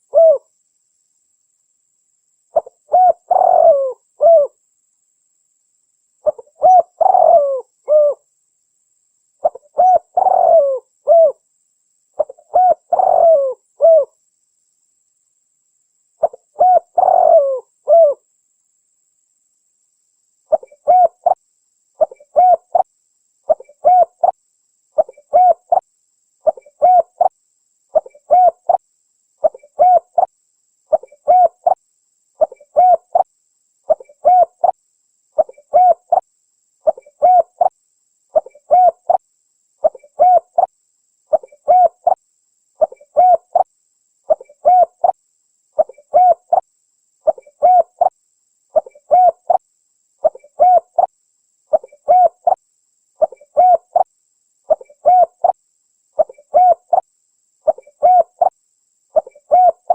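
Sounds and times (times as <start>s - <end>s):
dove cooing: 0.0s - 0.4s, 2.6s - 4.6s, 6.2s - 8.2s, 9.4s - 11.4s, 12.2s - 14.1s, 16.2s - 18.2s, 20.5s - 21.4s, 22.0s - 22.9s, 23.5s - 24.4s, 25.0s - 25.8s, 26.4s - 27.3s, 28.0s - 28.8s, 29.4s - 30.3s, 30.9s - 31.8s, 32.4s - 33.3s, 33.9s - 34.8s, 35.4s - 36.2s, 36.8s - 37.7s, 38.4s - 39.2s, 39.8s - 40.7s, 41.3s - 42.2s, 42.8s - 43.7s, 44.3s - 45.2s, 45.8s - 46.6s, 47.3s - 48.1s, 48.8s - 49.6s, 50.2s - 51.1s, 51.7s - 52.6s, 53.2s - 54.1s, 54.7s - 55.6s, 56.2s - 57.0s, 57.7s - 58.5s, 59.2s - 59.9s.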